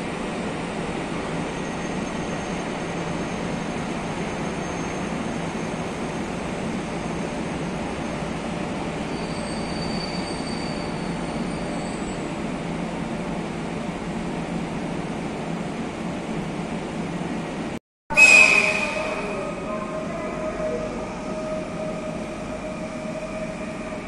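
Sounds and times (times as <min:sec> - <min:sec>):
train rail rumble: 0:00.0 - 0:24.0
metallic wheel squeals: 0:09.1 - 0:12.2, 0:18.1 - 0:19.5.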